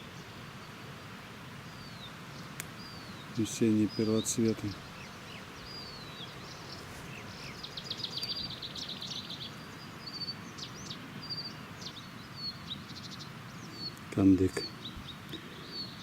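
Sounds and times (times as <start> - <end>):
songbirds chirping and whistling: 0.0 - 16.0.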